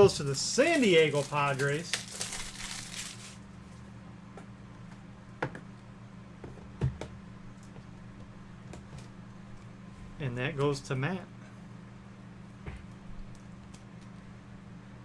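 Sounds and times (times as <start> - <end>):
plastic packaging rustle: 0.0 - 3.5
low electrical hum: 0.0 - 15.0.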